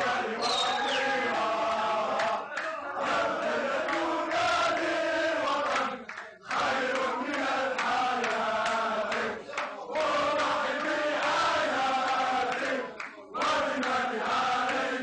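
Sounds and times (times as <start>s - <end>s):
men chanting and singing: 0.0s - 15.0s
high sliding whistle tone: 0.4s - 1.2s.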